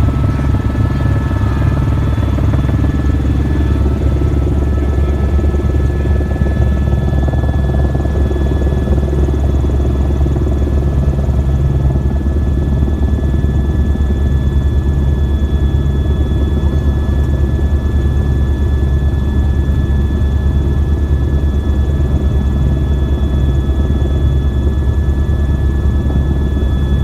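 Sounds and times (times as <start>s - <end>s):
thin steady high whine: 0.0s - 20.1s
helicopter rotor and engine drone: 0.0s - 27.0s.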